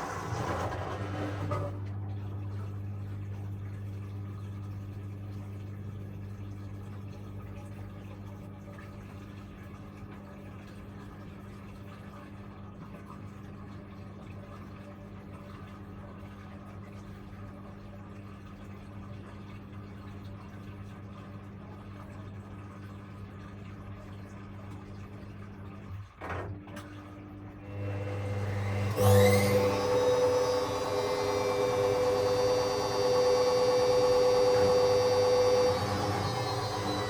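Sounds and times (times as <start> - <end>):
washing machine electric hum: 0.0 - 37.0
water moving inside machine: 0.0 - 37.0.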